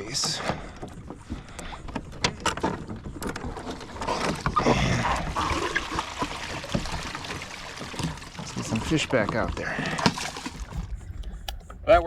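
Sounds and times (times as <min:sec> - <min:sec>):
fishing gear clicks and knocks: 0:00.0 - 0:04.7, 0:07.8 - 0:12.0.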